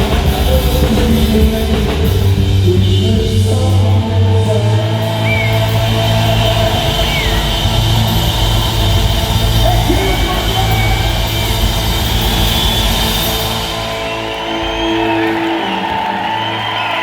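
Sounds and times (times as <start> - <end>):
crowd noise: 0.0 - 17.0
rock band holding a chord: 0.0 - 17.0
whistles and whoops: 4.9 - 17.0.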